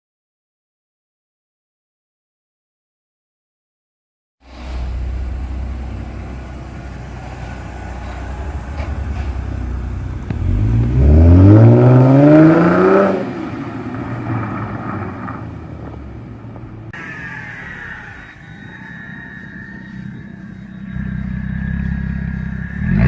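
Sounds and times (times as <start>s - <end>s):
car engine revving: 4.5s - 16.9s, 20.6s - 23.0s.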